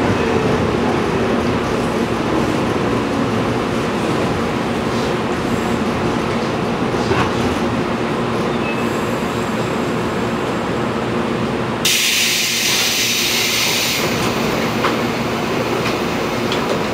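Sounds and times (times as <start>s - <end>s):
electric train interior hum: 0.0s - 16.9s
air brakes hissing: 11.8s - 14.2s.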